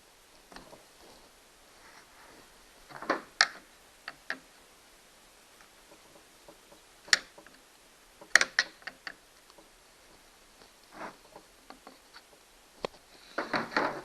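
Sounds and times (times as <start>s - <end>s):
chainsaw parts clicking: 8.2s - 9.6s.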